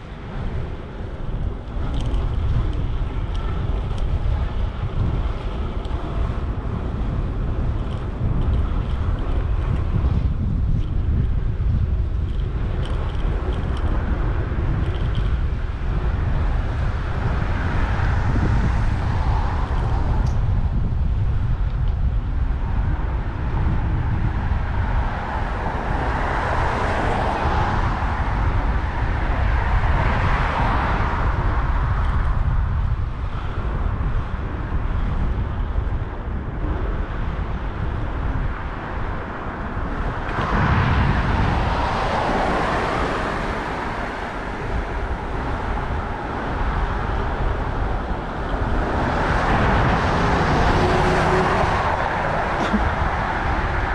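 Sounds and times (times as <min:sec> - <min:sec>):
city road traffic: 0:00.0 - 0:53.9
vehicles passing: 0:00.0 - 0:53.9
wind rumbling on microphone: 0:00.0 - 0:53.9.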